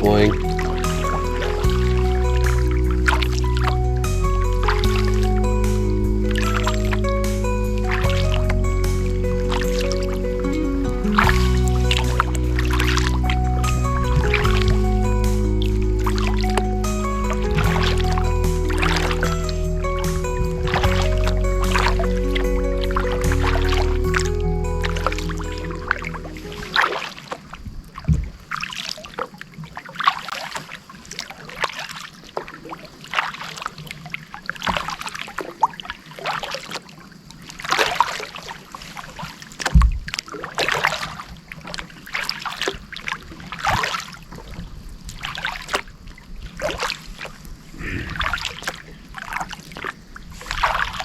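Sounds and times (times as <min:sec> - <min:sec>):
low thumps: 0:00.0 - 0:26.8
kayak paddle splashing: 0:00.0 - 0:51.0.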